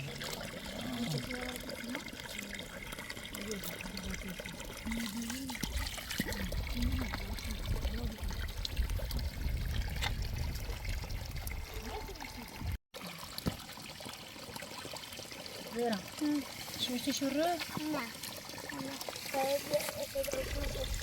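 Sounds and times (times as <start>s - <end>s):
low voice murmuring: 0.0s - 2.6s
water trickling and pouring: 0.0s - 21.0s.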